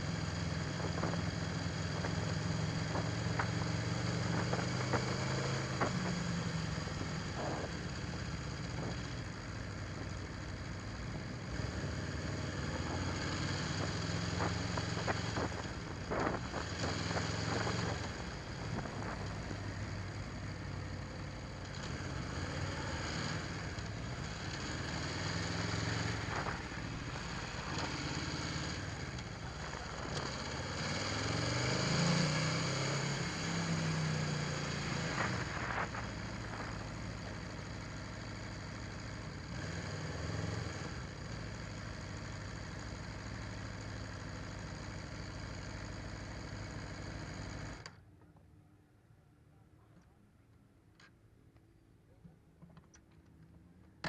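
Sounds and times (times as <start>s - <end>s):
motorcycle engine at low revs: 0.0s - 48.3s.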